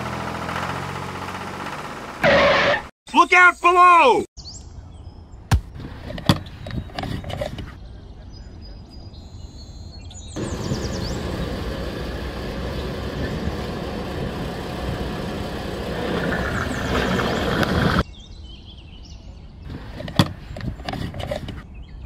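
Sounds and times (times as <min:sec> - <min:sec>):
tractor engine running: 0:00.0 - 0:02.9, 0:10.4 - 0:18.0.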